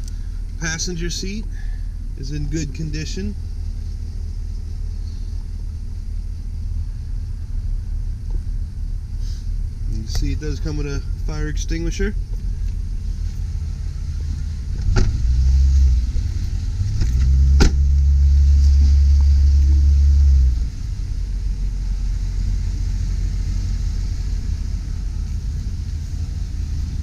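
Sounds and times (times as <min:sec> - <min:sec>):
truck engine idling: 0:00.0 - 0:15.4.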